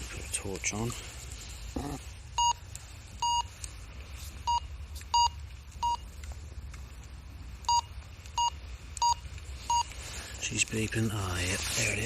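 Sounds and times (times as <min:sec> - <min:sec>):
metal detector beeps: 0:02.4 - 0:02.6, 0:03.2 - 0:03.5, 0:04.4 - 0:06.0, 0:07.7 - 0:10.0.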